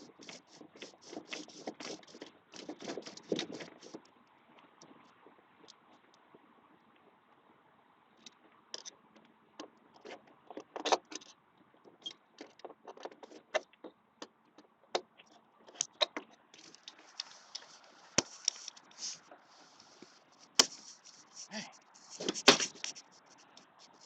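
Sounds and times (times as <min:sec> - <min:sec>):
faint steady hiss: 0:14.0 - 0:24.0.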